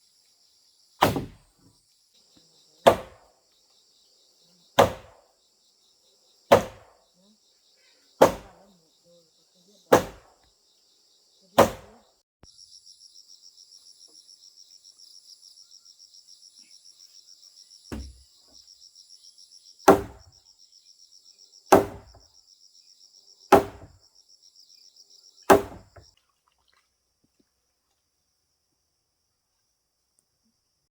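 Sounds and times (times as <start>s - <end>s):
hammer striking wood: 1.0s - 1.4s, 2.9s - 3.2s, 4.8s - 5.2s, 6.5s - 6.9s, 8.2s - 8.6s, 9.9s - 10.3s, 11.6s - 11.9s, 17.9s - 18.2s, 19.9s - 20.3s, 21.7s - 22.2s, 23.5s - 24.0s, 25.5s - 26.0s.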